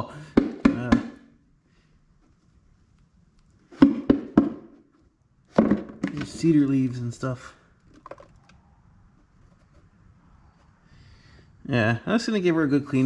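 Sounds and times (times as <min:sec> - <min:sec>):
sharp knocks on plastic airbox: 0:00.3 - 0:01.2, 0:03.8 - 0:04.8, 0:05.5 - 0:06.2.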